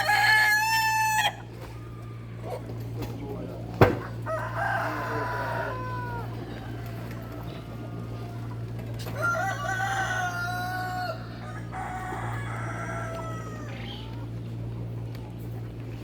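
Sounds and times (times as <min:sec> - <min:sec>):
rooster crowing: 0:00.0 - 0:02.4, 0:04.0 - 0:14.2
steady low hum: 0:00.0 - 0:16.0.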